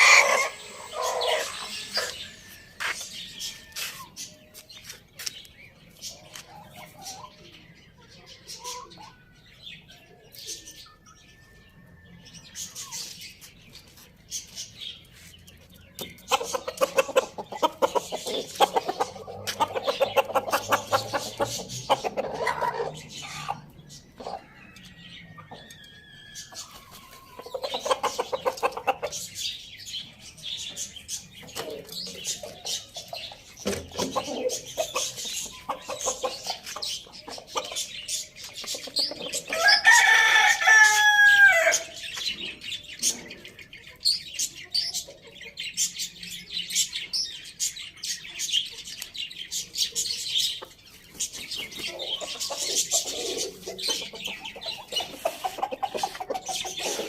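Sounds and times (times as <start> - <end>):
rooster crowing: 0.0 - 2.6, 39.5 - 41.8
chickens clucking: 0.0 - 57.0.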